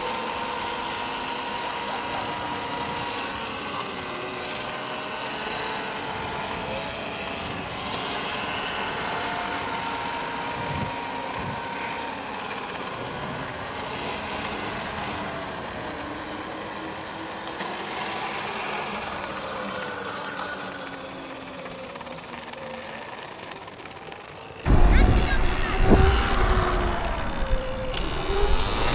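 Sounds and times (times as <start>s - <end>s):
electric motor whine: 0.0s - 28.9s
steady rushing noise: 24.6s - 28.9s.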